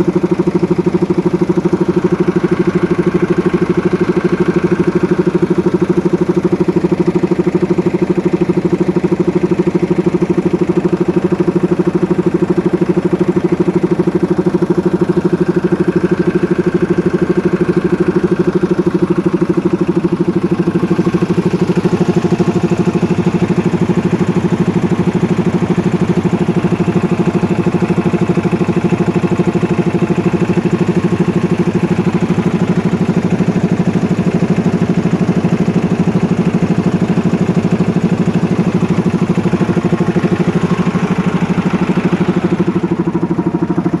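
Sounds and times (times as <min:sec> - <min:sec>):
tractor diesel engine idling: 0:00.0 - 0:44.0.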